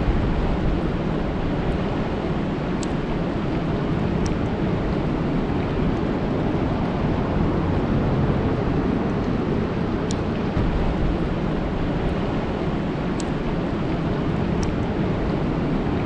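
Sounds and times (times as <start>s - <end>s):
rain falling on a lake: 0.0s - 16.0s
faint ticks: 13.2s - 13.4s.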